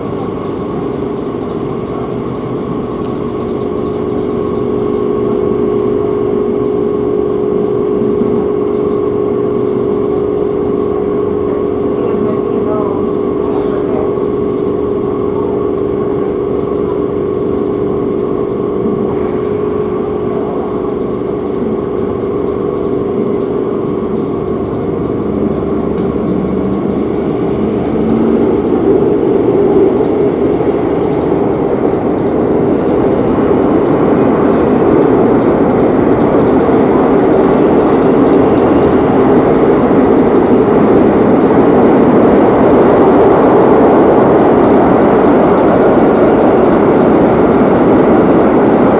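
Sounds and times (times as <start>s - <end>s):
train rolling rumble: 0.0s - 48.9s.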